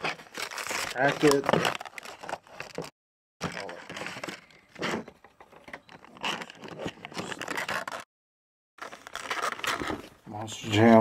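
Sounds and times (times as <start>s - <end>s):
plastic packaging crinkling and tearing: 0.0s - 4.9s, 6.0s - 8.1s, 8.8s - 10.1s.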